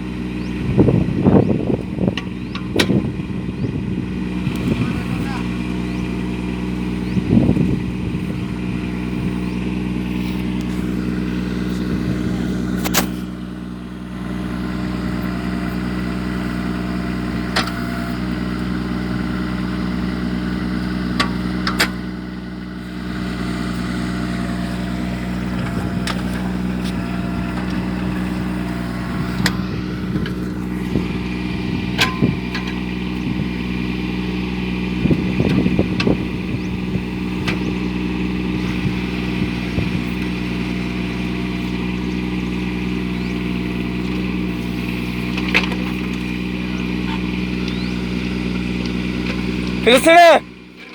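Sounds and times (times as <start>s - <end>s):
mini tractor engine running: 0.0s - 50.9s.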